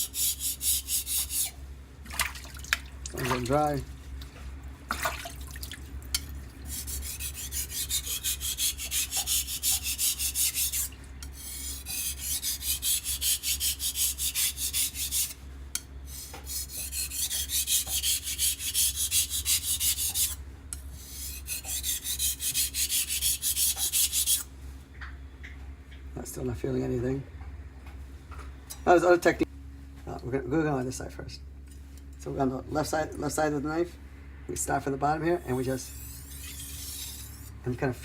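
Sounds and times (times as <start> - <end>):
knife scraping on whetstone: 0.0 - 1.6, 6.7 - 15.4, 16.1 - 24.5, 35.4 - 38.0.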